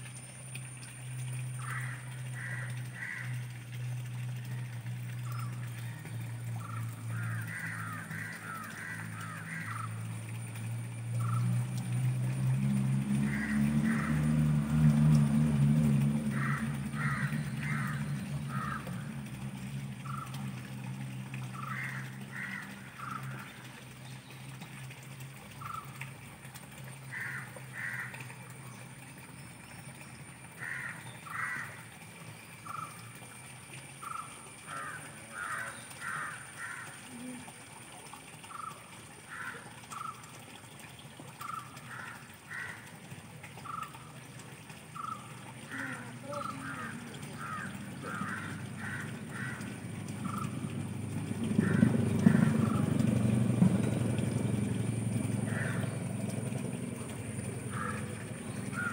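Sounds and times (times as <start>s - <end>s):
birds calling: 16.3s - 24.8s, 27.1s - 32.0s, 34.0s - 37.4s, 45.0s - 58.9s.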